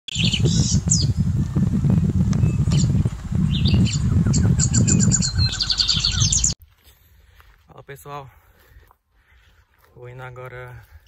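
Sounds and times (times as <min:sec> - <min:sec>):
birds chirping and calling: 0:00.1 - 0:01.7, 0:02.3 - 0:06.6.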